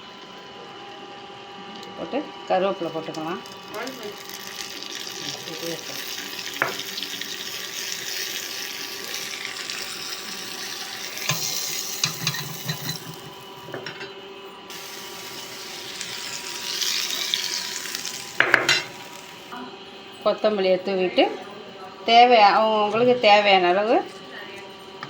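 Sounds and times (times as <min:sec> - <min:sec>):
leaves sizzling in butter: 0:02.5 - 0:19.6.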